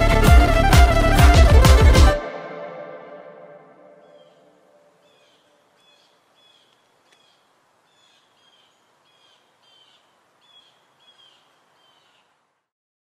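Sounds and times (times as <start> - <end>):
low hiss: 4.7 - 12.7
small bird chirping: 5.0 - 12.4.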